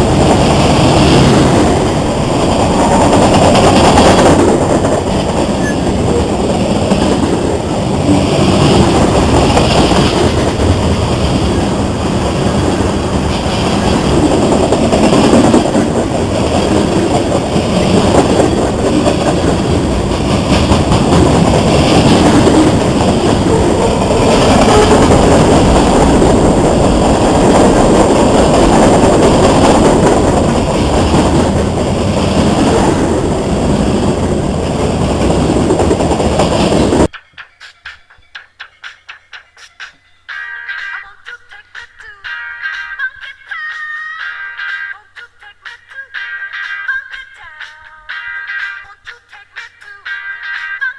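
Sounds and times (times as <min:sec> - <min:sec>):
freight train rolling past: 0:00.0 - 0:37.2.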